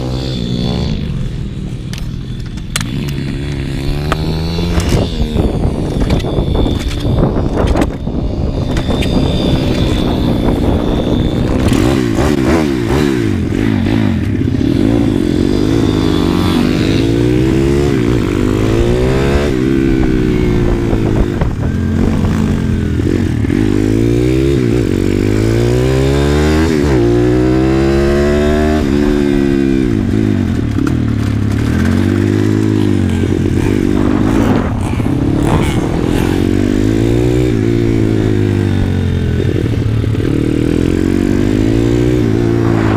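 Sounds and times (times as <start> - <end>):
pit bike engine revving: 0.0 - 42.9.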